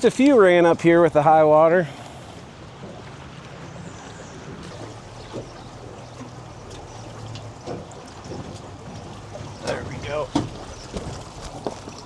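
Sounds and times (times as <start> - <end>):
fast-flowing river: 0.0 - 12.0.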